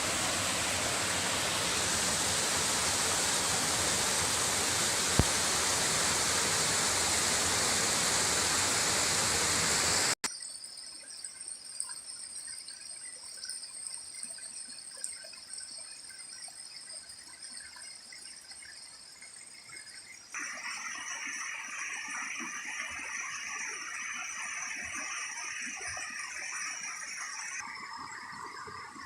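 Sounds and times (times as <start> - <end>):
steady high-pitched tones: 0.0 - 10.2, 20.4 - 29.0
waterfall rushing and splashing: 0.0 - 10.2.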